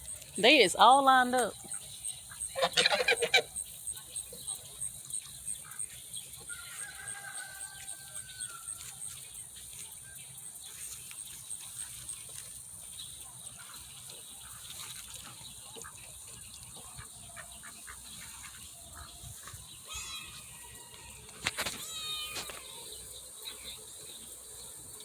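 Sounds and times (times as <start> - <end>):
soft scattered ticks: 0.0 - 2.7, 3.3 - 19.7
ducks calling: 0.0 - 3.6, 13.6 - 20.6.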